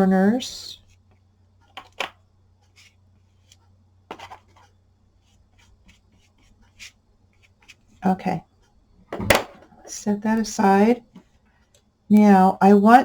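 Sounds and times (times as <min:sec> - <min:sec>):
paintbrush scratching on paper: 0:04.2 - 0:07.9.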